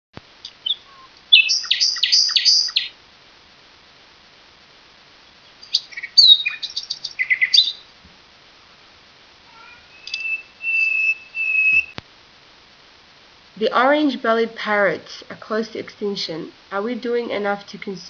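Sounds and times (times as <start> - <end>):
parrot chirping: 0.5 - 3.0, 5.6 - 7.9, 9.5 - 12.0.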